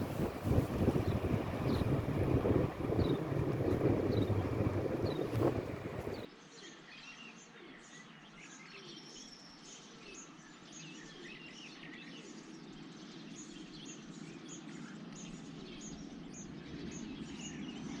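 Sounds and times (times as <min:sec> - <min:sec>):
birds chirping: 0:00.0 - 0:06.3
low rushing noise: 0:00.0 - 0:06.3.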